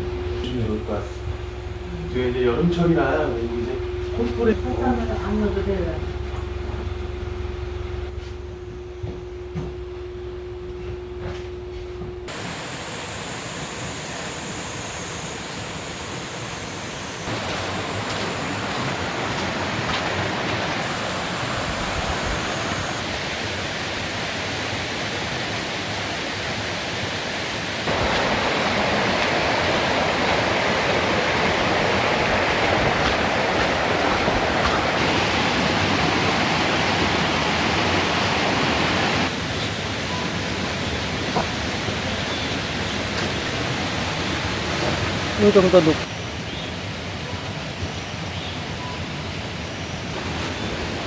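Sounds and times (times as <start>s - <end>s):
falling water rushing: 12.3s - 51.0s.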